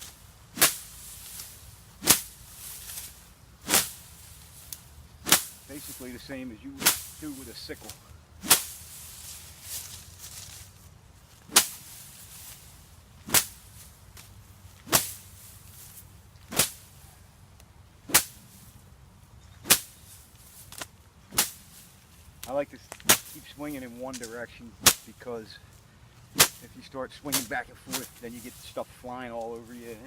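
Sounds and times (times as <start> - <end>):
sapling swishing through grass: 0.0 - 30.0.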